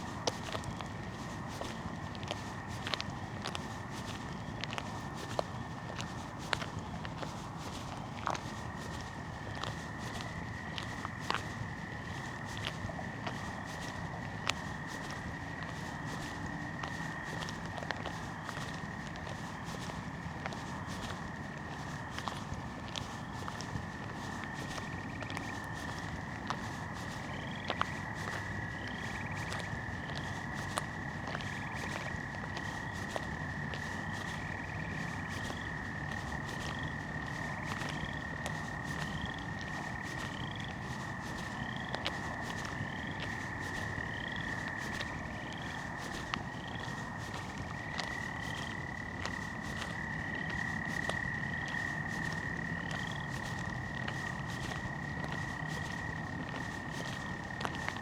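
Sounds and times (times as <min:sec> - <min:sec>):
frogs trilling: 0:00.0 - 0:58.0.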